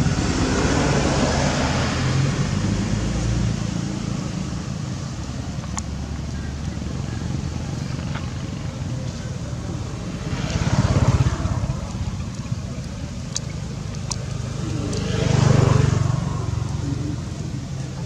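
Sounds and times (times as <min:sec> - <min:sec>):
low motor rumble: 0:00.0 - 0:18.0
faint clicks: 0:05.1 - 0:18.0.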